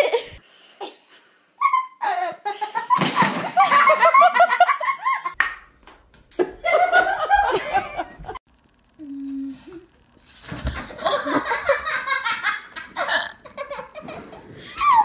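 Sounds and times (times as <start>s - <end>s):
people laughing hard: 2.0s - 5.4s, 6.4s - 8.4s, 10.9s - 15.0s.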